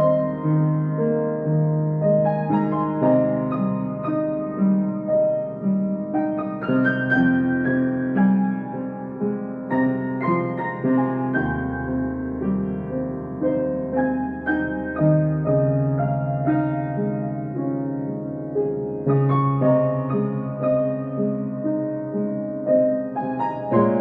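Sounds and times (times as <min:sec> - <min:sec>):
slow gentle piano piece: 0:00.0 - 0:24.0.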